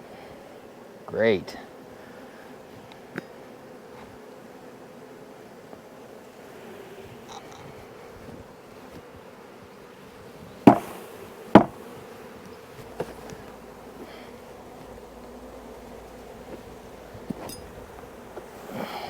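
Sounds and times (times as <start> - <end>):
honeybees buzzing: 0.0 - 19.0
loud knocks: 10.6 - 11.9.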